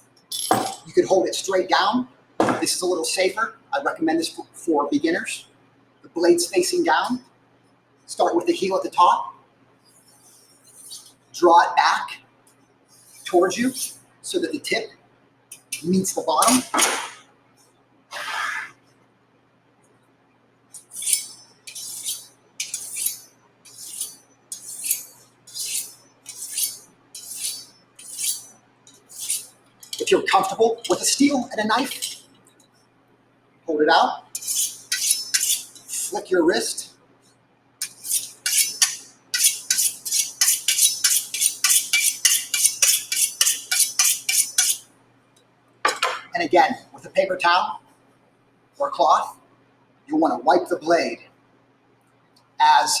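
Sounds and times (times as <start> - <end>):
knife scraping on honing steel: 10.1 - 11.2, 13.0 - 14.0, 20.8 - 31.2, 31.8 - 32.3, 34.4 - 36.2, 37.8 - 44.8
knife honing on steel rod: 34.4 - 36.1, 37.8 - 44.8.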